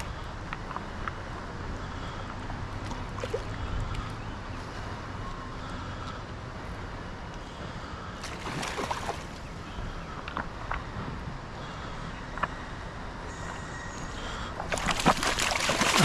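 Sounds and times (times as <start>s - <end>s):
stream water rushing: 14.6s - 16.0s.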